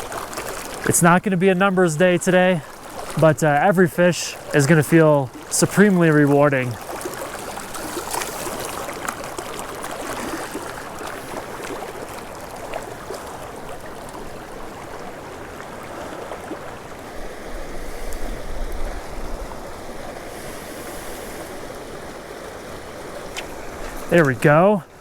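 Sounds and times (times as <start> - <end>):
creek water rushing over rocks: 0.0 - 25.0.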